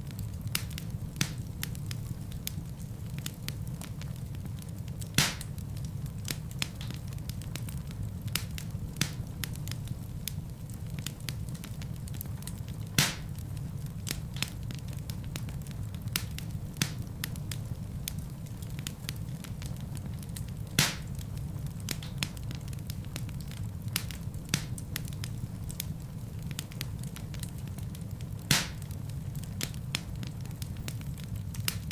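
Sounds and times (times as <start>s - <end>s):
fire crackling: 0.0s - 31.9s
fire rumbling: 0.0s - 31.9s
logs popping: 5.1s - 5.6s, 13.0s - 13.4s, 20.8s - 21.2s, 28.4s - 29.0s.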